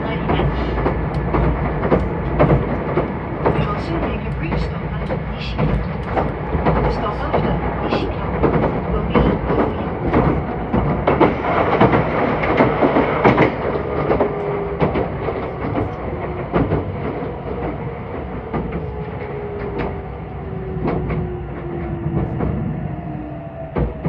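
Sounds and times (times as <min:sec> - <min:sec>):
train motor whine: 0:00.0 - 0:17.6
train wheels clicking over rail joints: 0:00.0 - 0:20.1.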